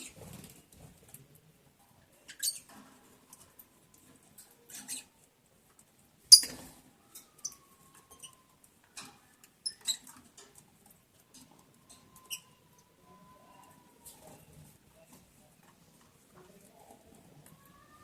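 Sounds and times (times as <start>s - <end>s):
lovebirds chirping: 6.3s - 6.6s.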